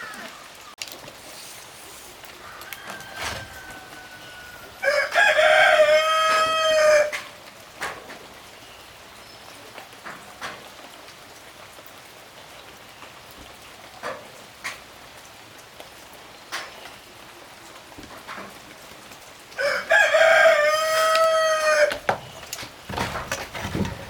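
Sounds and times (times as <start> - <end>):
steady hiss: 1.0 - 2.6
rooster crowing: 2.3 - 7.4, 19.6 - 22.1.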